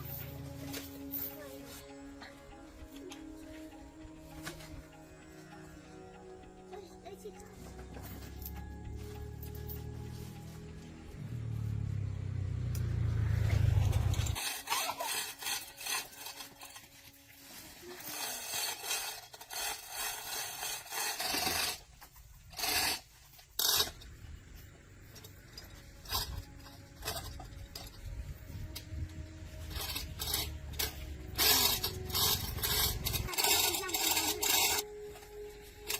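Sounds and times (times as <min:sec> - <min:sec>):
rasping and scraping hand work: 0:13.8 - 0:35.9.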